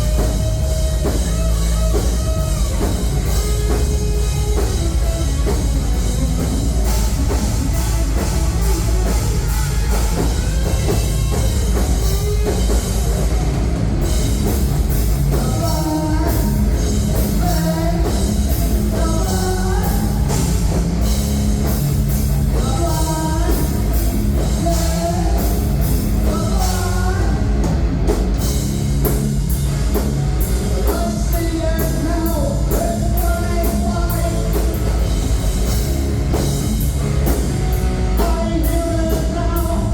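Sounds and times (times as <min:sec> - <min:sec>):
live rock band playing: 0:00.0 - 0:39.9
person singing: 0:15.3 - 0:20.8, 0:22.4 - 0:27.6, 0:38.1 - 0:39.9.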